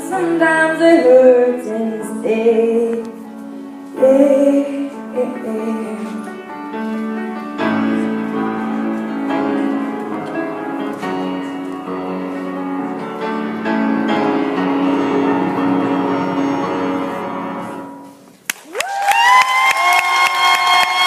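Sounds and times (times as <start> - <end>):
piano ballad accompaniment: 0.0 - 18.5
audience cheering and whooping: 18.6 - 21.0.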